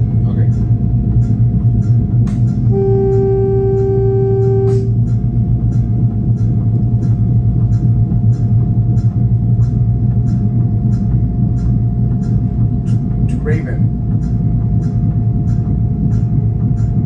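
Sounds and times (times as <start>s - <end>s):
railcar low drone: 0.0s - 17.0s
faint steady whine: 2.5s - 5.2s.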